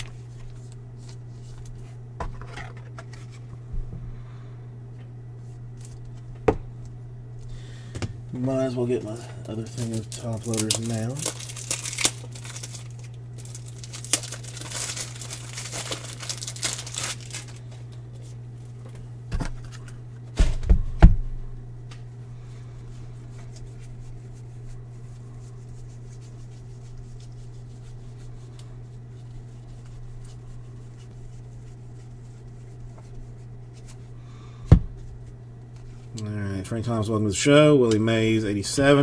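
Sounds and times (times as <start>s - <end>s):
plastic wrapping crinkling and tearing: 8.8s - 18.0s.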